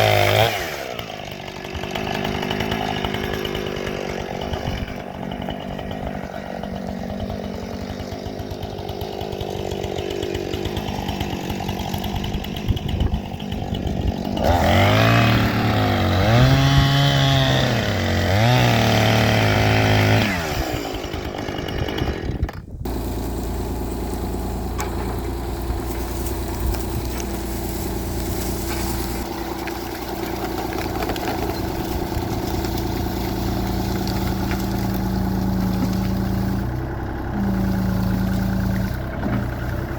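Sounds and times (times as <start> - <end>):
chainsaw running: 0.0 - 39.9
engine running steadily: 22.4 - 39.9.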